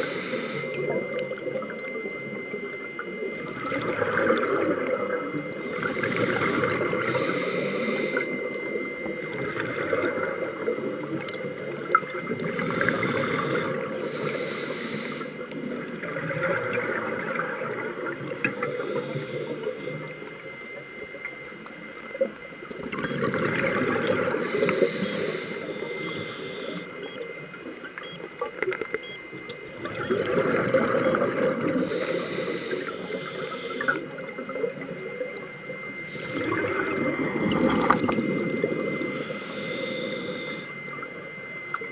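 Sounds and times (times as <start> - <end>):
faint steady high tone: 0.0 - 15.6, 17.7 - 41.9
underwater bubbles gurgling: 0.0 - 41.9.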